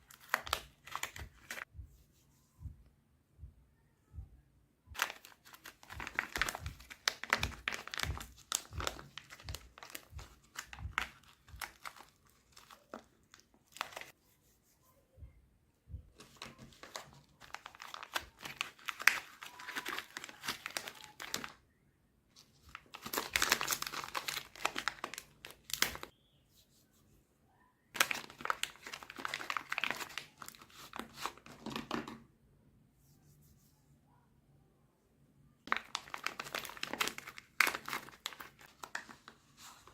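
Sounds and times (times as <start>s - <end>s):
crinkling rustle: 16.2s - 21.6s, 22.3s - 26.1s, 28.0s - 31.6s, 35.7s - 39.9s.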